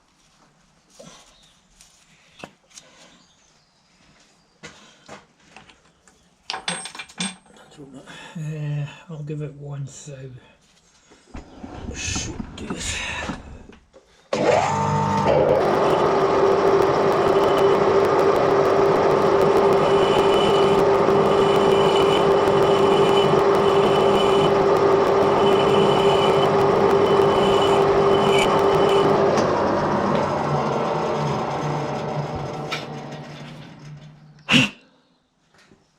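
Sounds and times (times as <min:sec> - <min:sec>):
lathe running with hum: 0:14.4 - 0:34.2.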